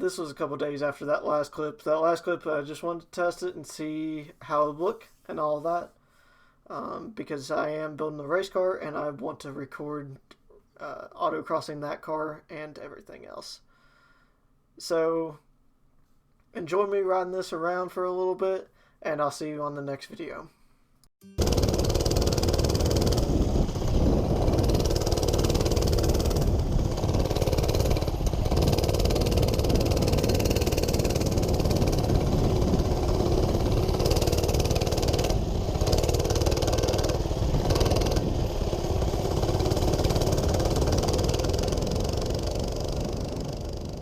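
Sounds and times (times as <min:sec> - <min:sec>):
rushing wind noise: 0:21.4 - 0:43.2
small engine revving: 0:21.4 - 0:44.0.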